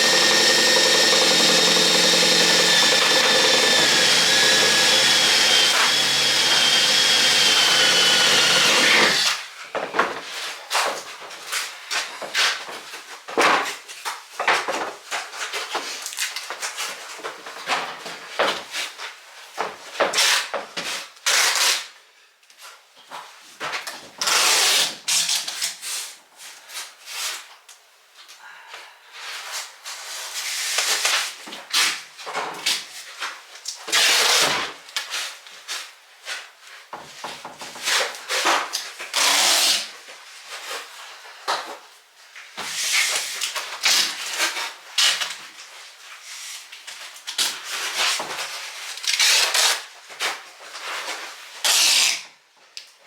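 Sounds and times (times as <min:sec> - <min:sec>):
power tool bursts: 0:00.0 - 0:09.4.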